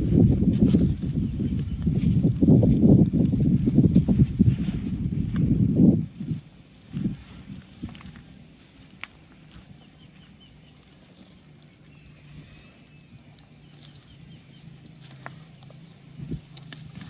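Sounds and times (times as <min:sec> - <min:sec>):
insect buzz: 0:00.0 - 0:17.0
bird chirps: 0:11.8 - 0:14.7.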